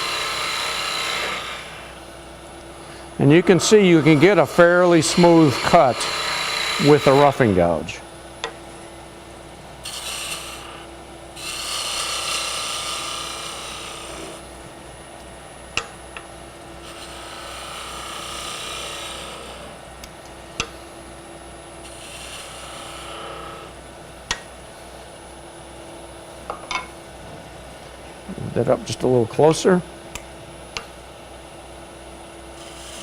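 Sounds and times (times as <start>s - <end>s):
gouge cutting wood on lathe: 0.0s - 2.0s, 3.2s - 7.8s, 9.8s - 14.5s, 16.8s - 19.8s, 21.8s - 23.8s, 32.6s - 33.0s
lathe humming: 0.0s - 33.0s.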